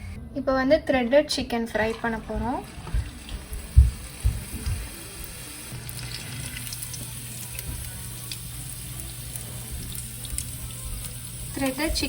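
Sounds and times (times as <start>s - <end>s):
low steady hum: 0.0s - 12.0s
food deep-frying in oil: 2.3s - 12.0s.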